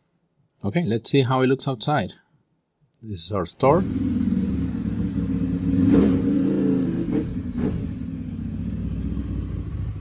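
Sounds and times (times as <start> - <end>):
motorcycle engine idling: 3.8 - 6.4, 7.3 - 10.0.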